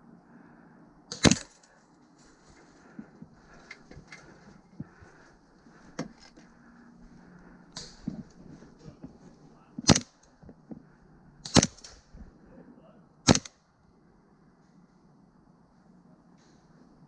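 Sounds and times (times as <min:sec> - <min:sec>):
airsoft gun shots: 0:01.1 - 0:01.6, 0:09.8 - 0:10.2, 0:11.4 - 0:12.0, 0:13.2 - 0:13.6.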